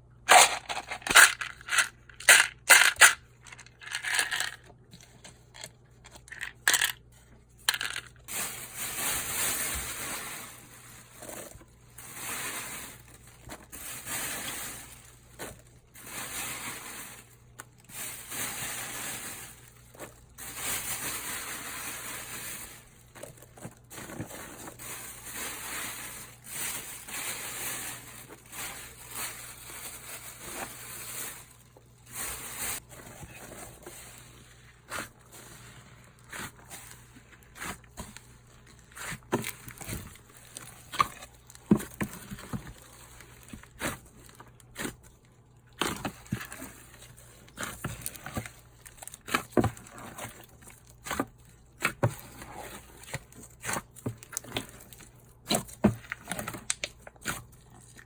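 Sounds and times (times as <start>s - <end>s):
slime squishing by hand: 32.1s - 58.0s.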